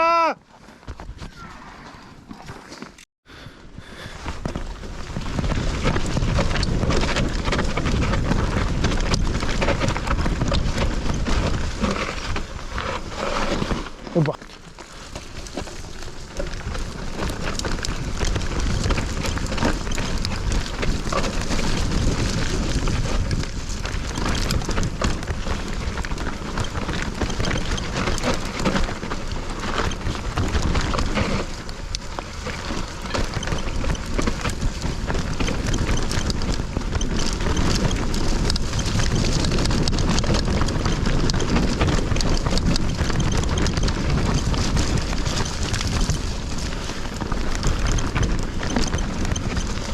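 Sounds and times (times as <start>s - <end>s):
bike rattling and knocking: 3.8s - 49.9s
tyres rumbling over dirt: 3.8s - 49.9s
wind buffeting microphone: 16.2s - 49.9s.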